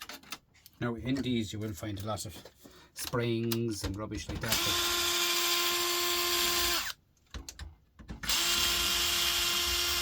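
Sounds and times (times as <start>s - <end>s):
power drill whining: 4.5s - 7.0s, 8.2s - 10.0s.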